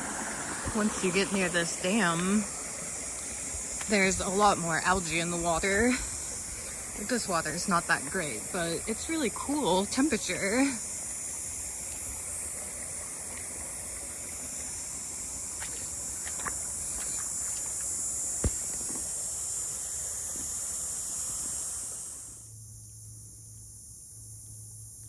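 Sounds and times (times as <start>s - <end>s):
high-pitched insect buzzing: 14.4s - 25.0s.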